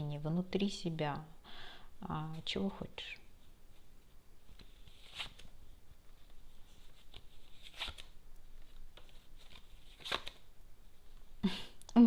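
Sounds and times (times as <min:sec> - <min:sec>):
cards flicking and rustling: 0:04.4 - 0:05.6, 0:06.2 - 0:10.5.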